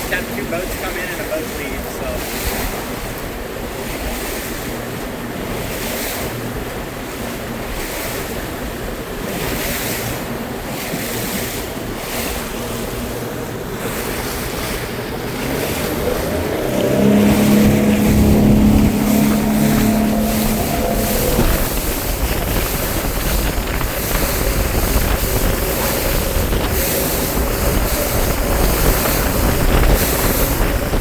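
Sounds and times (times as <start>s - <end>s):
motorboat engine droning: 0.0s - 31.0s
waves on open water: 0.0s - 31.0s
wind on microphone: 11.3s - 31.0s.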